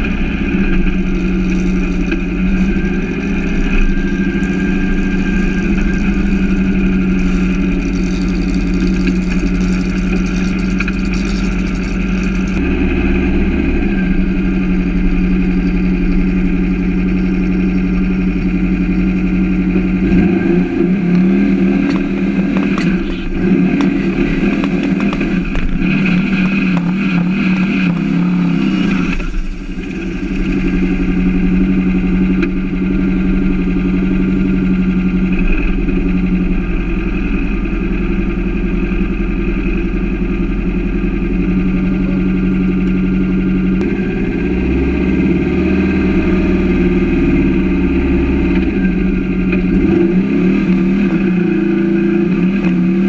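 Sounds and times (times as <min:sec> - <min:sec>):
car engine idling: 0:00.0 - 0:53.0
engine revving with crackles: 0:00.0 - 0:53.0.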